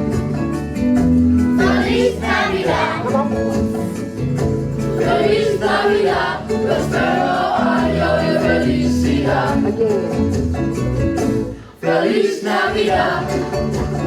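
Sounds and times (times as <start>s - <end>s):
instrumental accompaniment: 0.0s - 14.0s
choir singing: 1.5s - 4.0s, 4.7s - 9.7s, 11.7s - 13.8s.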